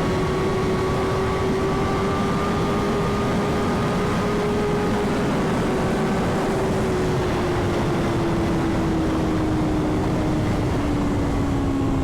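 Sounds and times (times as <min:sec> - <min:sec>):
motorcycle engine at high revs: 0:00.0 - 0:08.5.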